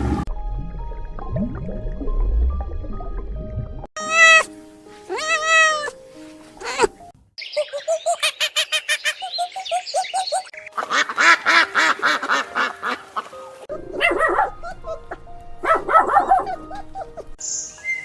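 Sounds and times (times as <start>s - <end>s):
geese or ducks calling: 10.6s - 13.6s.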